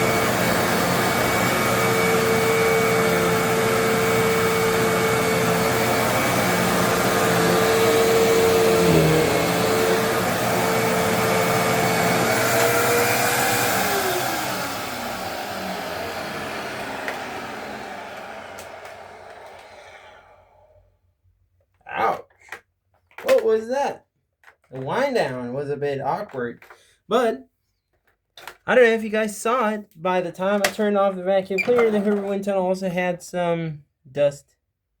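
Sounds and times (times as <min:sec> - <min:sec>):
vacuum cleaner running: 0:00.0 - 0:20.6
vacuum motor spinning down: 0:00.0 - 0:20.6.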